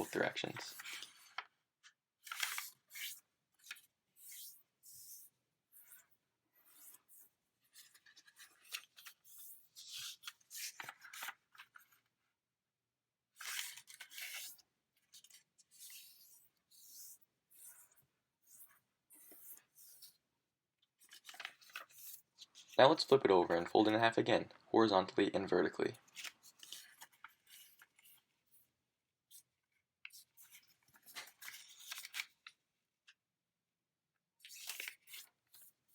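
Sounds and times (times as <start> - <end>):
paper rustling and rubbing: 2.3 - 11.9, 13.4 - 20.2, 21.0 - 23.6, 26.0 - 28.7, 30.1 - 32.4, 34.5 - 35.8.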